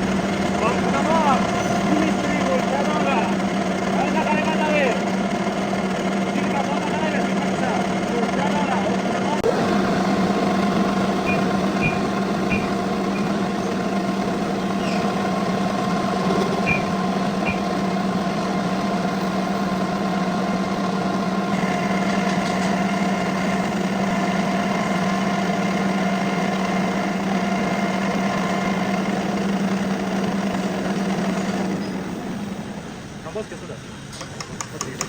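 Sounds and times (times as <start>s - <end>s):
high steady whine: 0.0s - 26.1s
metal lathe humming: 0.0s - 35.0s.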